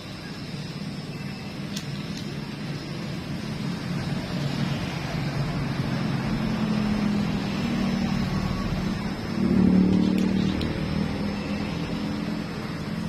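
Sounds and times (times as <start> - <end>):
vehicle engine running: 2.5 - 13.0.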